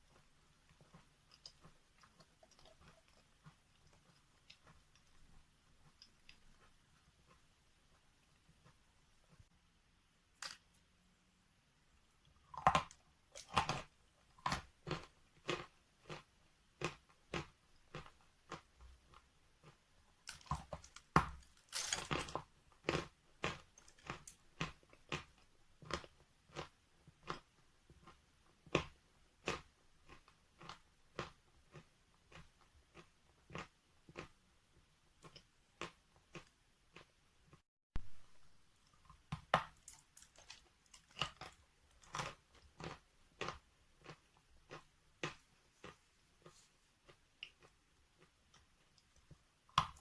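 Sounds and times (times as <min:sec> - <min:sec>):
chalk crunching while chewing: 0:12.5 - 0:34.3, 0:38.8 - 0:50.0.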